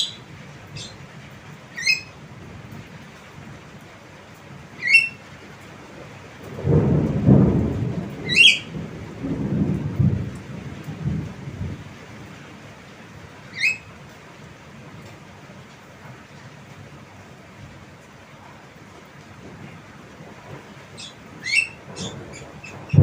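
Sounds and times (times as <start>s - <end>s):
myna rising calls: 0.0s - 1.0s, 1.8s - 2.2s, 4.8s - 5.2s, 8.3s - 8.7s, 13.5s - 13.8s, 21.0s - 23.0s.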